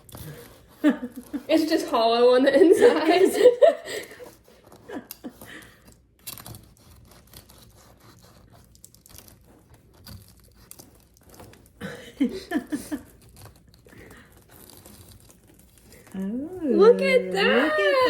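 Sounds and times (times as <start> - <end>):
knife sawing through bread crust: 0.0 - 1.4, 6.4 - 11.8.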